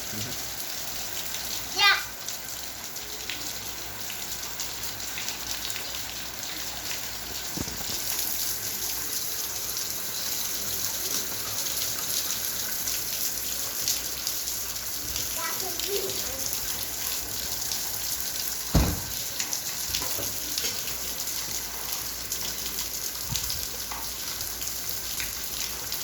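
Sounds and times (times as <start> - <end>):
rain falling: 0.0 - 26.0
brief low thump: 18.7 - 19.2.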